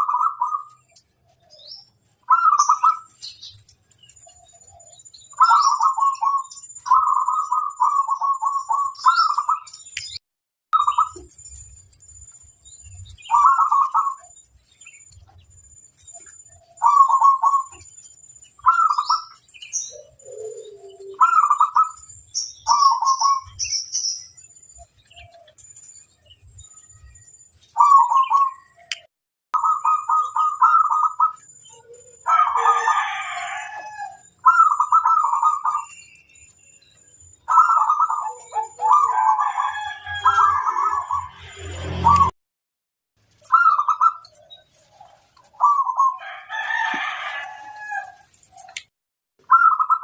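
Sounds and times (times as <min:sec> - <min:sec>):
doves cooing: 0:00.0 - 0:00.8, 0:01.6 - 0:03.3, 0:04.2 - 0:09.7, 0:13.2 - 0:14.4, 0:16.5 - 0:17.9, 0:18.6 - 0:23.7, 0:27.8 - 0:28.9, 0:29.6 - 0:36.0, 0:37.5 - 0:42.3, 0:43.5 - 0:48.8
small bird chirping: 0:00.0 - 0:10.2, 0:10.8 - 0:41.4, 0:43.4 - 0:46.2, 0:48.6 - 0:50.0
rooster crowing: 0:32.2 - 0:34.3, 0:38.8 - 0:42.1, 0:46.0 - 0:48.3.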